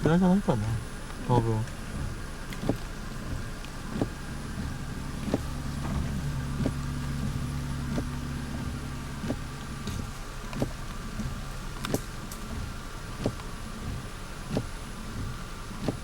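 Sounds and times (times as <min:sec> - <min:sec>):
engine hum: 0:00.0 - 0:16.0.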